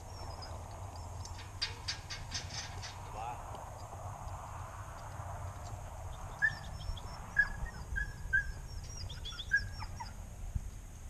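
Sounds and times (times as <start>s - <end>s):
bird chirping: 0.0s - 1.4s, 6.0s - 10.2s
wind rumble: 0.0s - 11.0s.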